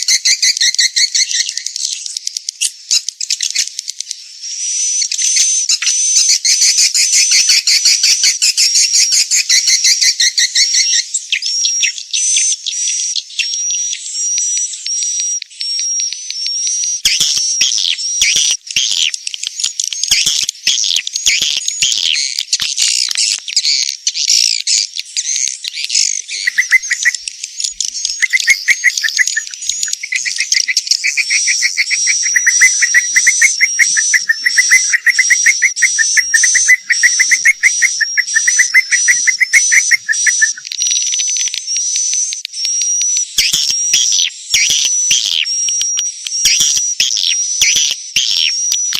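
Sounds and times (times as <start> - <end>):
recorded swiftlet chirping: 0.0 - 48.9.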